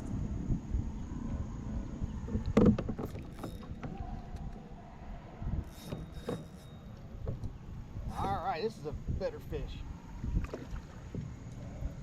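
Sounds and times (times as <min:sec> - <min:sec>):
water and handling noise: 0:02.2 - 0:04.7.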